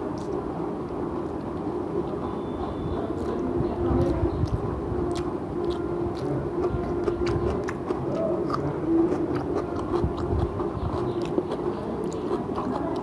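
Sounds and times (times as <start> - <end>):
person chewing food: 0.0 - 0.4, 3.2 - 3.4, 4.0 - 13.0.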